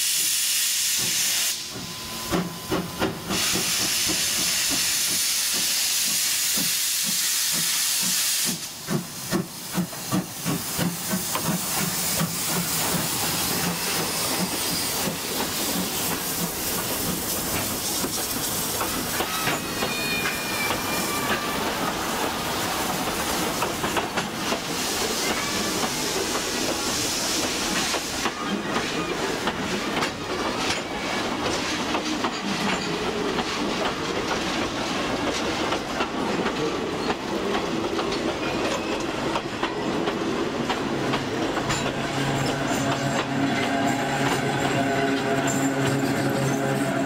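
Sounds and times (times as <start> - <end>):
hiss: 0.0 - 1.8, 3.2 - 19.8, 20.4 - 29.6
train wheels clicking over rail joints: 0.9 - 46.9.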